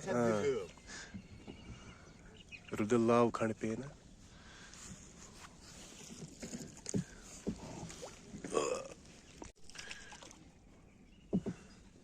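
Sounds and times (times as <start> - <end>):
paddle strokes: 4.0 - 10.4
water gurgling against hull: 6.1 - 10.4.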